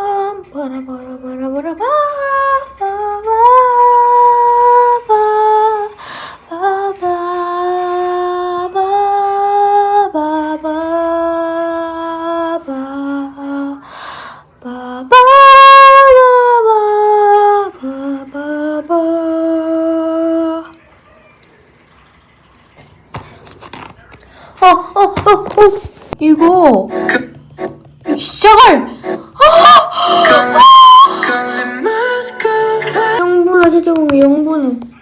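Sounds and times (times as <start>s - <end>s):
woman singing wordless melody: 0.0s - 14.0s, 14.6s - 20.8s, 28.1s - 34.9s
singer breathing: 6.0s - 6.5s, 13.8s - 14.6s.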